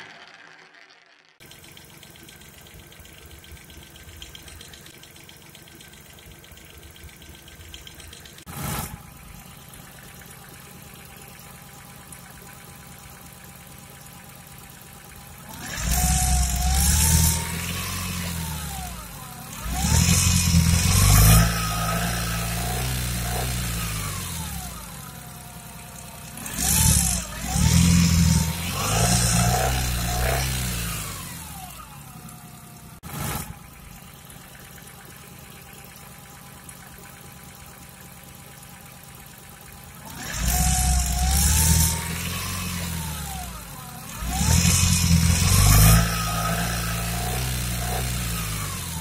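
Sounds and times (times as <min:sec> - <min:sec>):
car engine idling roughly: 0:01.4 - 0:49.0
car engine revving: 0:05.7 - 0:12.2, 0:15.1 - 0:35.1, 0:39.5 - 0:49.0.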